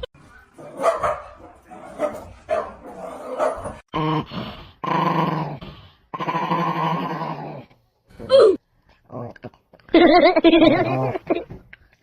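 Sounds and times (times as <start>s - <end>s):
dog barking: 0.6s - 3.8s
dog growling: 4.0s - 7.7s.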